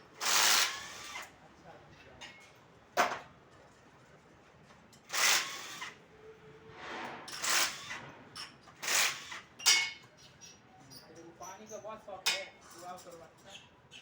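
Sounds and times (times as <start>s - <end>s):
tools scraping and clattering: 6.7s - 10.0s.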